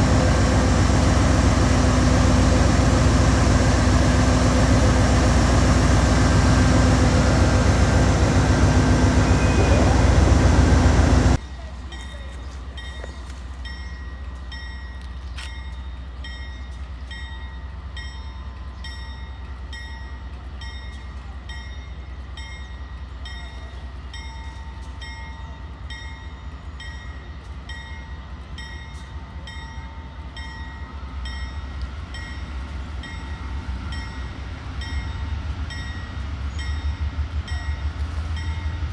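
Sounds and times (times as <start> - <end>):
locomotive passing close by: 0.0 - 11.4.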